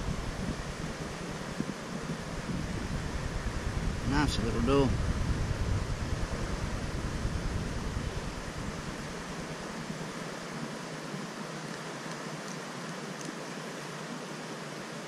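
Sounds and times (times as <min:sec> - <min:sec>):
river water rushing: 0:00.0 - 0:04.5, 0:07.7 - 0:15.0
wind rumble on microphone: 0:00.0 - 0:10.2
wind: 0:00.0 - 0:15.0.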